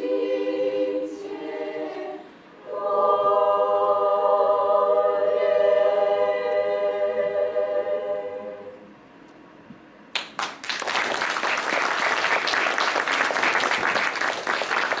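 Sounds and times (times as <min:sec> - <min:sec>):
choir holding a chord: 0:00.0 - 0:08.9
audience applause: 0:10.2 - 0:15.0.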